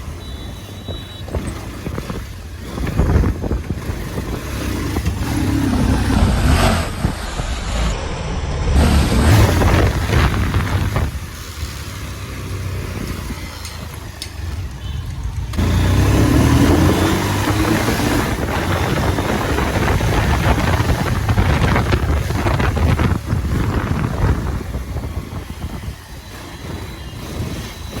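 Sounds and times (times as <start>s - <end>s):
motorcycle running: 0.0s - 28.0s.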